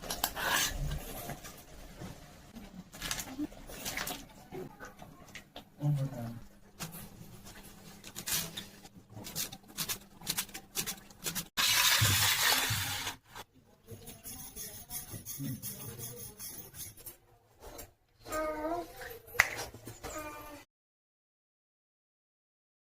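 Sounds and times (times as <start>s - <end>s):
spoon scraping a pan: 14.0s - 17.2s.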